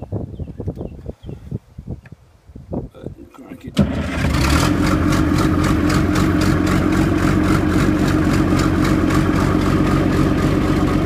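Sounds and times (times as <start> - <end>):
diesel engine idling: 3.8 - 11.0.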